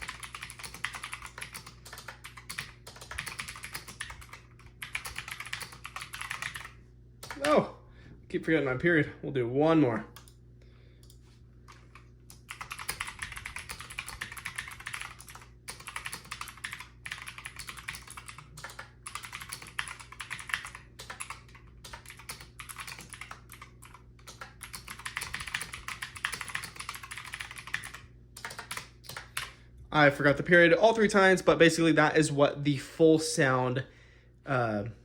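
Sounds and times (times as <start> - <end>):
mechanical keyboard typing: 0.0 - 7.6, 11.9 - 29.5.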